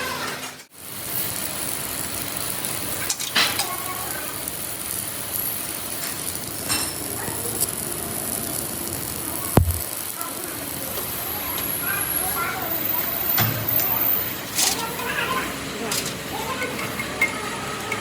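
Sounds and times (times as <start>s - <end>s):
workshop noise: 9.5s - 10.1s.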